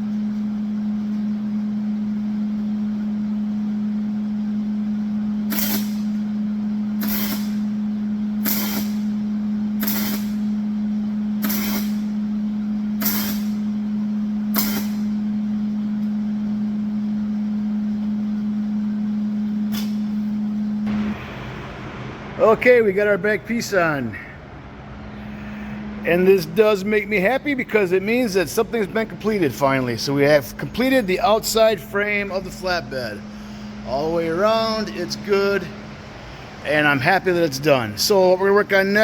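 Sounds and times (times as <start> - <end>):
short hissing welds: 5.5 - 6.2, 7.0 - 7.8, 8.4 - 9.2, 9.8 - 10.6, 11.4 - 12.2, 13.0 - 13.7, 14.5 - 15.2
welder humming: 19.0 - 37.4.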